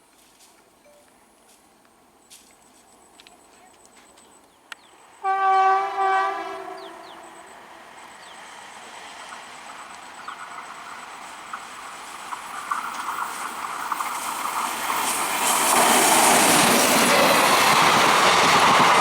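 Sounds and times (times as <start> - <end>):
train rushing rumble with clatter: 5.0 - 19.0
train horn blast: 5.2 - 7.5.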